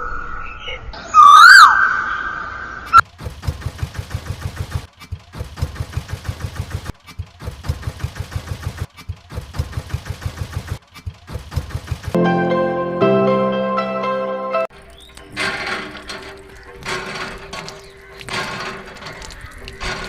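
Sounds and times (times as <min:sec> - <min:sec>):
diesel tractor engine chugging: 0:03.0 - 0:12.9, 0:14.7 - 0:20.0.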